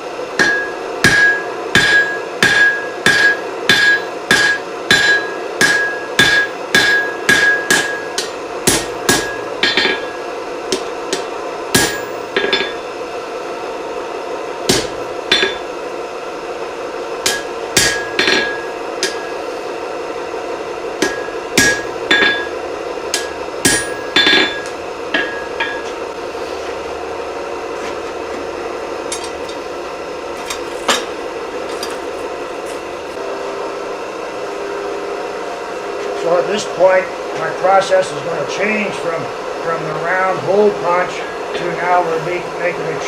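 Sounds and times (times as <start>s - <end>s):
steady hum: 0.0s - 43.0s
hammer striking hot steel on anvil: 0.3s - 12.9s, 14.6s - 15.8s, 17.2s - 19.5s, 21.0s - 26.2s, 29.1s - 29.6s.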